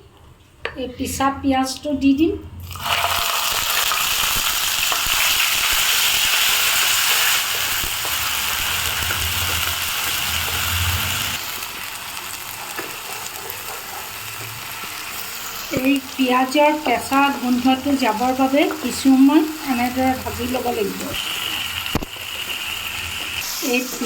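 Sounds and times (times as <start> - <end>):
onion paste sizzling in oil: 2.6 - 24.0.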